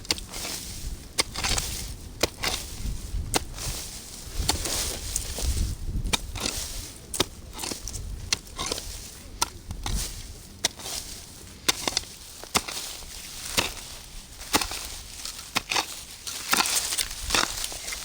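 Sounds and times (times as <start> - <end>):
wind rumble on microphone: 0.0 - 11.7, 17.0 - 18.0
crunching and rustling: 0.0 - 18.0.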